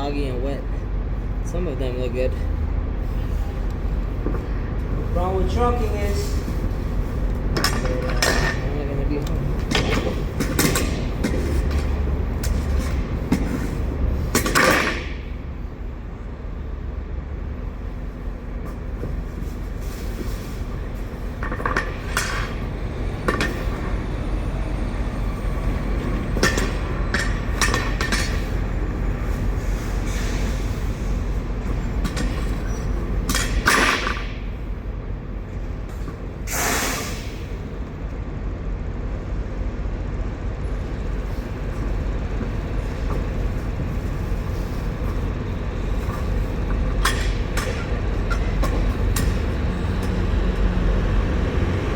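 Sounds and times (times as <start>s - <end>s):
low engine rumble: 0.0s - 51.9s.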